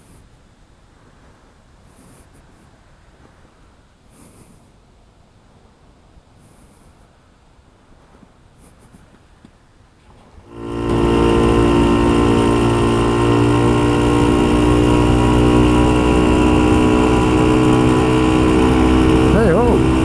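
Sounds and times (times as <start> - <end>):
motorcycle engine running: 10.4 - 20.0.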